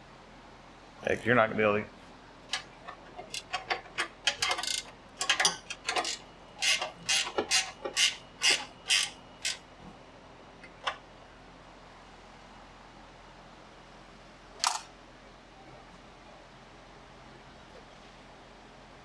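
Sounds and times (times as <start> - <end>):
ratchet wrench clicking: 3.3 - 9.6.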